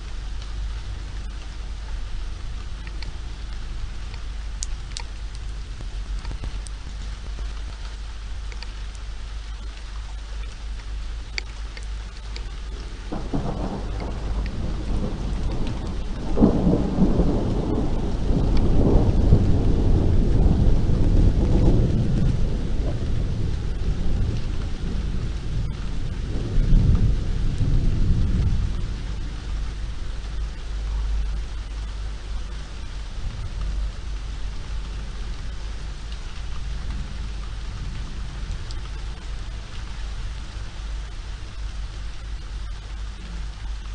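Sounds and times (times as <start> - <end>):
faint drip ticks: 0.0 - 19.6, 20.4 - 43.9
deep rumble: 0.0 - 43.9
steady rain: 0.0 - 43.9
rolling thunder: 12.7 - 43.6.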